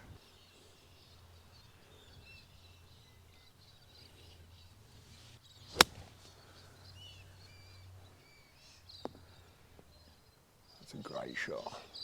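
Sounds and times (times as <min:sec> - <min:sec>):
golf club striking ball: 0:05.8 - 0:06.1.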